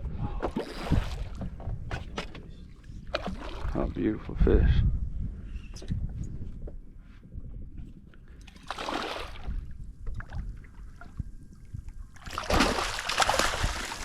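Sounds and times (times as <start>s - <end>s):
water sloshing around boat: 0.4s - 4.4s, 8.2s - 14.0s
water splashing: 12.2s - 14.0s.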